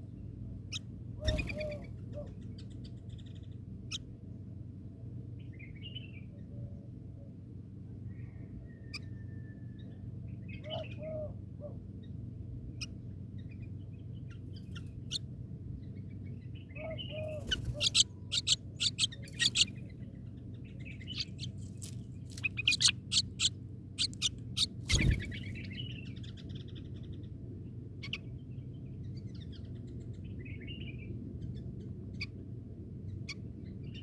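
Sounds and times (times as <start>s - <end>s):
low background hum: 0.0s - 34.0s
bird chirps and calls: 1.2s - 3.5s, 16.8s - 20.0s, 20.7s - 27.1s.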